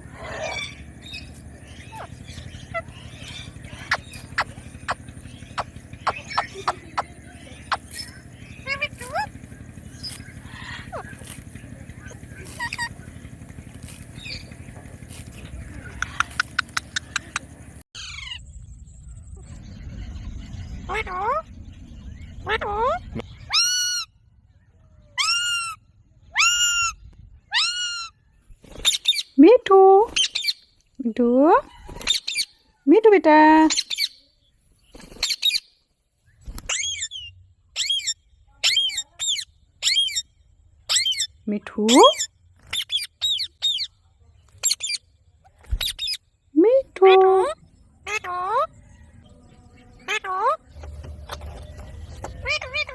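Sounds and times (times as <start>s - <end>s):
parrot squawk: 0.0s - 1.2s, 10.0s - 11.4s, 12.0s - 13.0s, 22.4s - 24.1s, 25.2s - 28.2s, 37.8s - 40.2s, 52.4s - 52.9s
parakeet squawking: 0.0s - 18.3s, 36.7s - 40.2s, 40.9s - 43.9s, 50.0s - 51.4s, 52.3s - 52.9s
parrot clicking: 15.9s - 17.5s.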